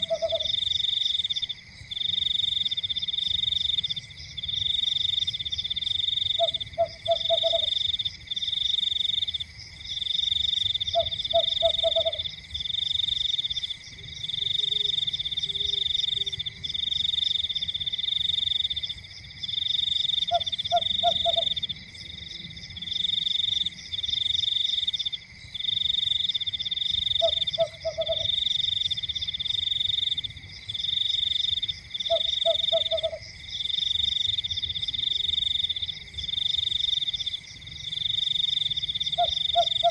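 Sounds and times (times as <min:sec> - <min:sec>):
frog croaking: 0:00.0 - 0:39.9
frogs trilling: 0:00.0 - 0:39.9.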